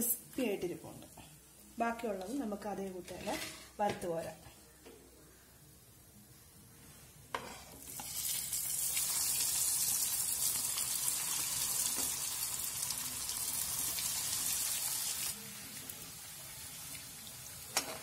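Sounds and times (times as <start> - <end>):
food sizzling in hot oil: 7.4 - 18.0.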